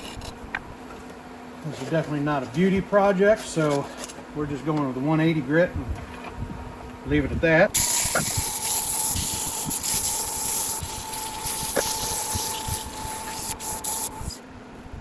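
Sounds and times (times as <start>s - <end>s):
sandpaper hissing on spinning wood: 7.8s - 14.4s
thin lathe whine: 7.8s - 14.5s.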